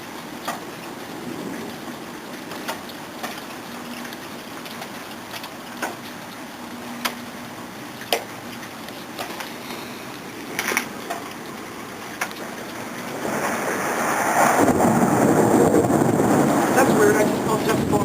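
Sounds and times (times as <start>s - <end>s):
wind gusting over microphone: 0.0s - 5.0s, 10.2s - 18.0s.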